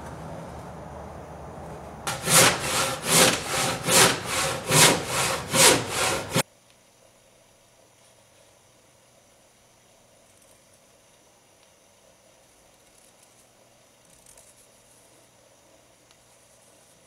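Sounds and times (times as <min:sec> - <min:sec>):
handsaw cutting wood: 0:02.1 - 0:06.4.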